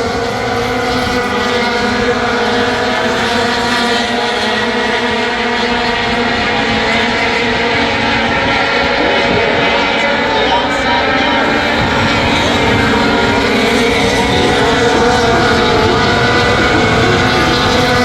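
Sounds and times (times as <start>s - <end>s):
race truck engines running: 0.0s - 18.0s.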